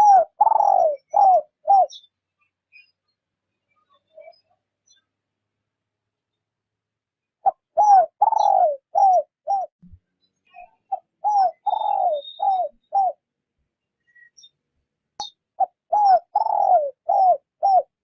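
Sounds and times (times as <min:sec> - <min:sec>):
dove cooing: 0:00.0 - 0:02.0, 0:07.4 - 0:09.7, 0:10.9 - 0:13.2, 0:15.6 - 0:18.0.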